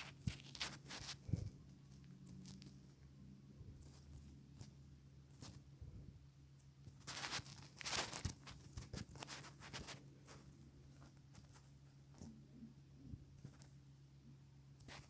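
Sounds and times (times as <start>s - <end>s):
handling taps and rustles: 0.0s - 1.6s
low steady hum: 0.0s - 15.0s
scraping rustle: 7.0s - 10.5s.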